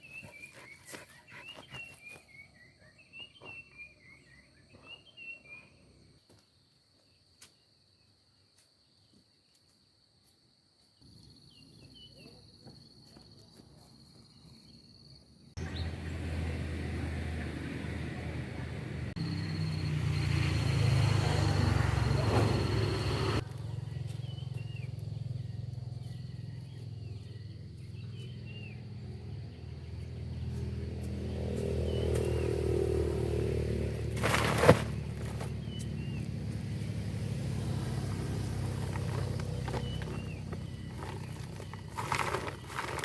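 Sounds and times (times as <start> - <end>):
birds chirping: 0.0 - 6.2, 14.2 - 18.3, 19.2 - 43.0
small engine humming: 30.0 - 43.0.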